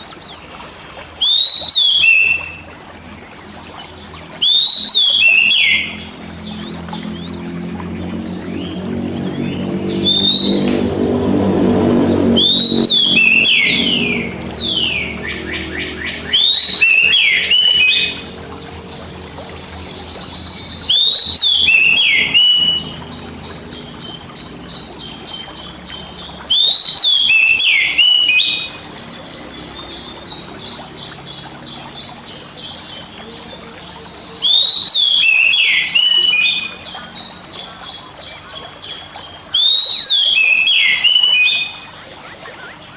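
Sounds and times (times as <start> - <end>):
bird whistled song phrases: 1.2 - 2.7, 3.8 - 7.3, 9.4 - 42.9
low drone: 2.3 - 35.2.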